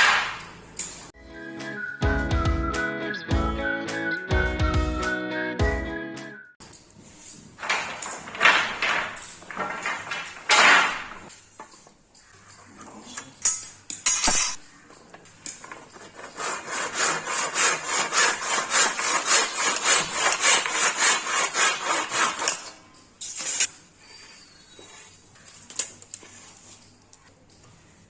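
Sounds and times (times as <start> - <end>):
hand tool rasping across wood: 15.9 - 22.7.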